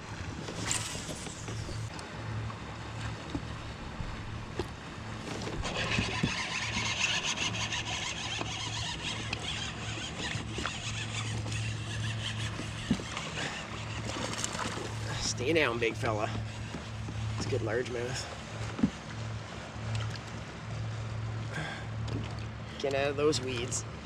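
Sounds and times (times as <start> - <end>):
reel drag clicking: 0.4 - 2.0, 4.6 - 19.0
fishing reel whirring: 0.5 - 1.9, 5.4 - 17.2.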